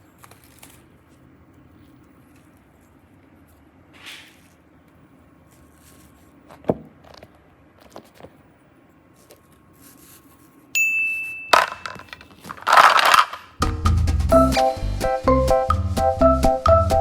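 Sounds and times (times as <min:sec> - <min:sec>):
bright ding: 0:10.8 - 0:11.5.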